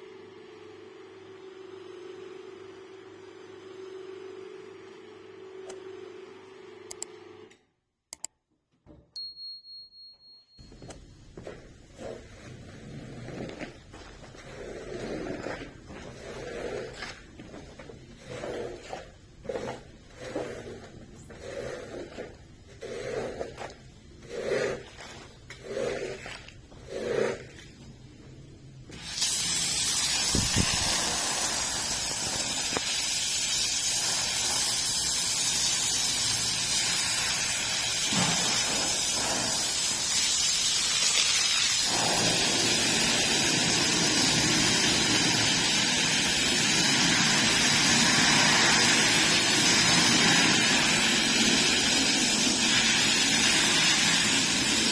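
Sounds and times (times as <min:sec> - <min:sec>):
stiff brush scrubbing wet carpet: 0:11.9 - 0:27.7
pressure washer spray hissing: 0:28.9 - 0:54.9.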